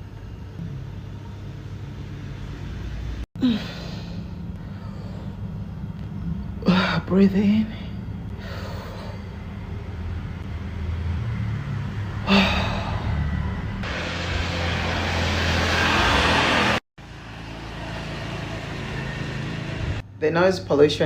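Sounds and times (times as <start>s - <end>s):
traffic engine rumble: 0.0s - 20.1s
person sighing: 3.4s - 5.3s, 12.2s - 13.2s
passing vehicle: 9.4s - 20.1s.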